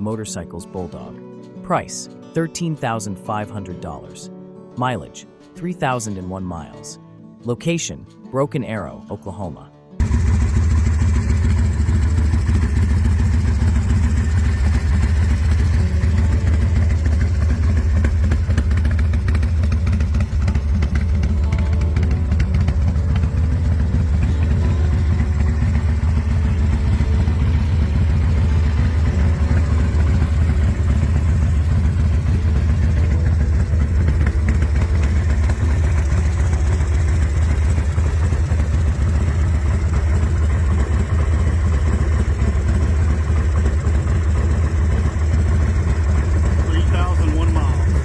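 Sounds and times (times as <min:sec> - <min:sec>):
motorcycle engine idling: 0:10.0 - 0:48.0.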